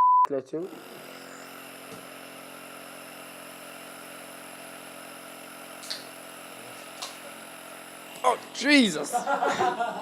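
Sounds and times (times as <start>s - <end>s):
nebuliser motor humming: 0.5s - 10.0s.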